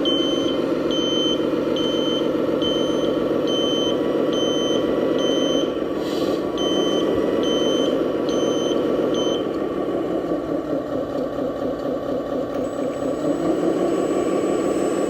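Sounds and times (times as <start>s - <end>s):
reversing beeper: 0.0s - 5.8s, 6.5s - 9.6s, 12.6s - 15.0s
model truck engine sound: 0.0s - 15.0s.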